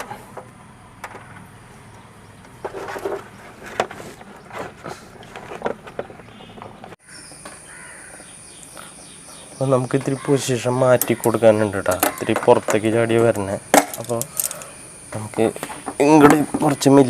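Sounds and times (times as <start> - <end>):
steady high hiss: 7.0 - 17.0.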